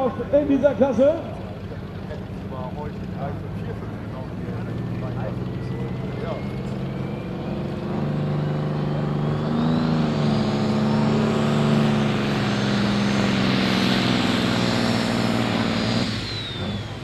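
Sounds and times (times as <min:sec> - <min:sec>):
diesel engine at high revs: 0:00.0 - 0:17.0
turbo whine: 0:00.0 - 0:17.0.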